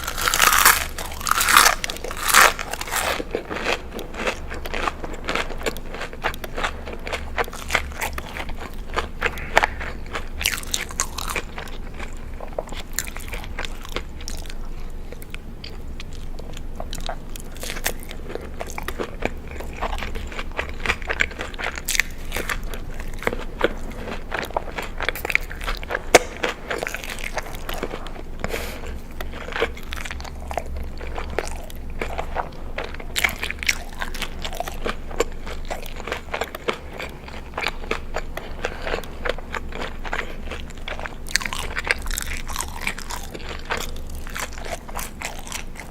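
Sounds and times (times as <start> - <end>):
crunchy chewing: 0.0 - 45.9.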